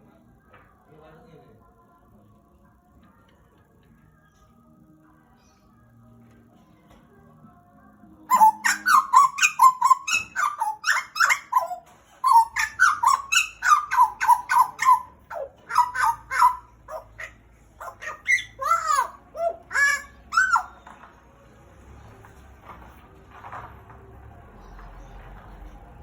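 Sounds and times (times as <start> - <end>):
butcherbird calling: 8.3 - 20.9.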